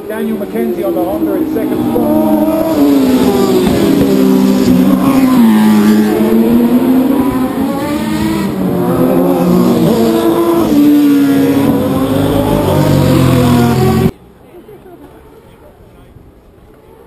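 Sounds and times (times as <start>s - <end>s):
racing motorcycle engines: 0.0s - 14.2s.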